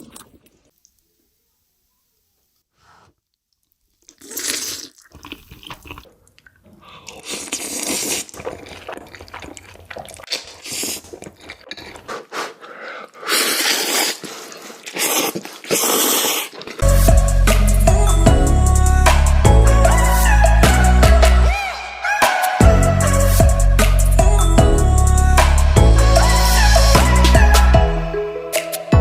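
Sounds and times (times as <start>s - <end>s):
person slurping noodles: 0.0s - 0.6s, 4.1s - 6.1s, 6.8s - 17.3s
chewing: 0.0s - 1.0s, 3.2s - 16.9s.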